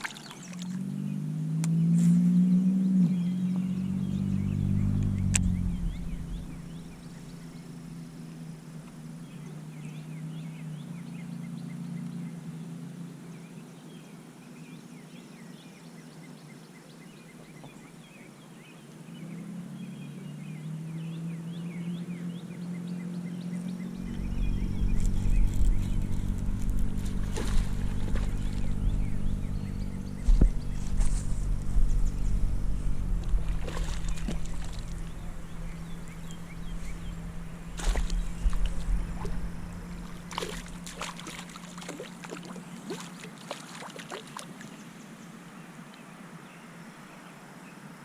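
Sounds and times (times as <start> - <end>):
bird chirps: 0.0 - 8.4, 13.3 - 43.2
low steady hum: 0.0 - 46.7.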